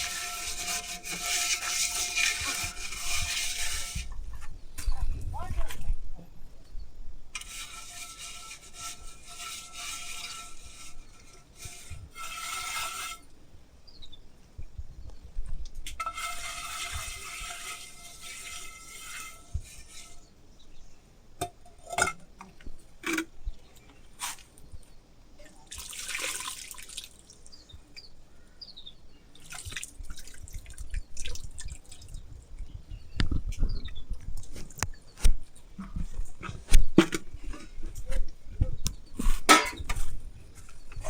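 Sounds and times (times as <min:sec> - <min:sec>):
water splashing and trickling: 0:25.4 - 0:27.7, 0:29.3 - 0:32.7
clinks and knocks: 0:39.5 - 0:41.0.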